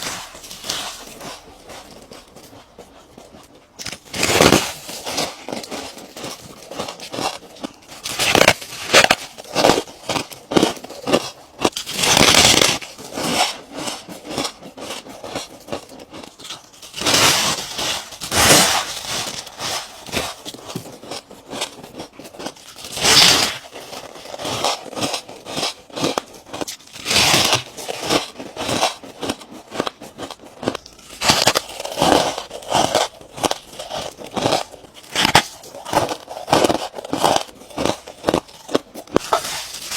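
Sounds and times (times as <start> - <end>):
person crunching ice: 0.0 - 39.9.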